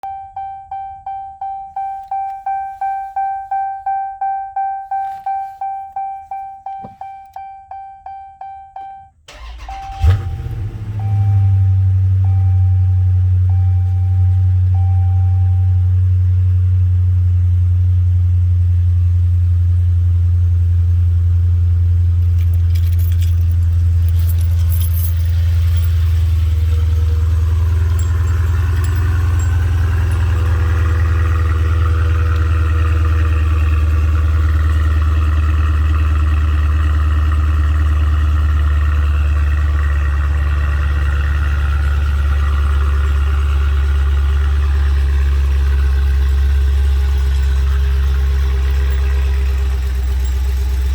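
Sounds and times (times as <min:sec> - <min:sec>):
faint light jingle: 0:00.0 - 0:10.0, 0:22.1 - 0:35.7, 0:44.8 - 0:50.9
car engine idling: 0:04.8 - 0:50.9.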